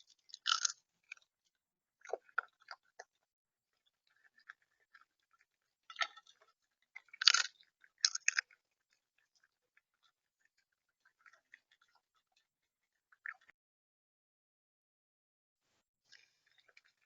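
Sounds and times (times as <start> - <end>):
bird pecking and cracking seed: 0.3 - 1.2, 7.1 - 8.6.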